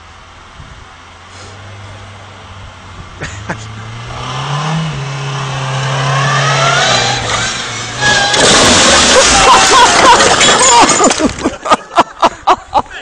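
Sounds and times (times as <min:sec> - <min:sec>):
car engine revving: 0:01.0 - 0:10.4.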